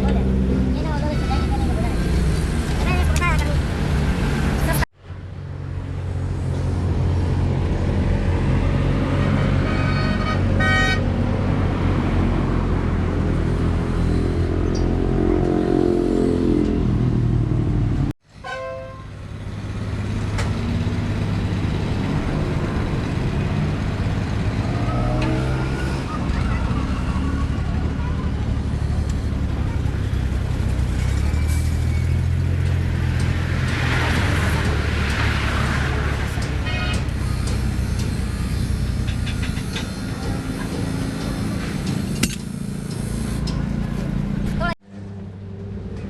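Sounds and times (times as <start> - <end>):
vehicle horn toots: 9.2 - 11.1, 18.4 - 19.1, 36.6 - 37.1
truck engine droning: 19.0 - 46.0.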